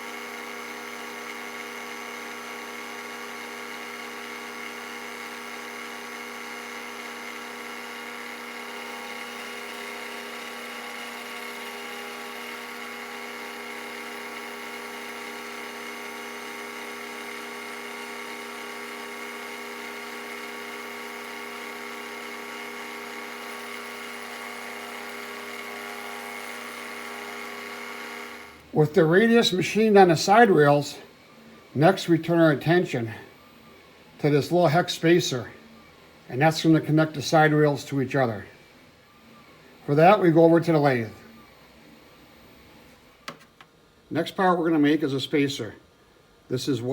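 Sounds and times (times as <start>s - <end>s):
end mill cutting aluminium: 0.0s - 28.7s
milling machine whining: 0.0s - 43.4s.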